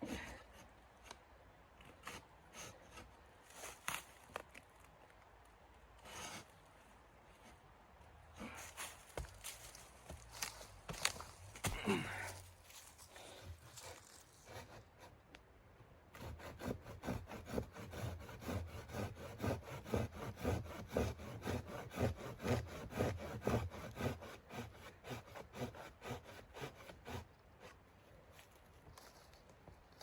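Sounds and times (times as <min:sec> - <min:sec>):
hand saw cutting wood: 0:06.0 - 0:06.5, 0:13.8 - 0:15.2, 0:16.2 - 0:27.8.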